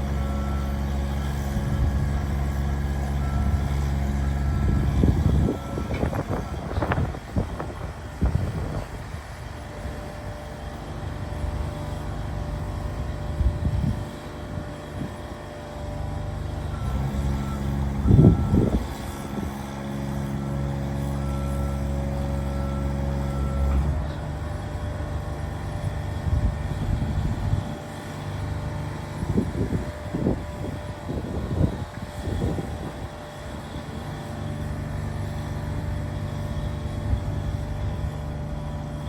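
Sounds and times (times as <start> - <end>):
small motor running steadily: 0.0 - 39.0
wind buffeting microphone: 1.4 - 10.4, 13.3 - 15.3, 17.9 - 19.6, 25.8 - 27.9, 29.0 - 33.8.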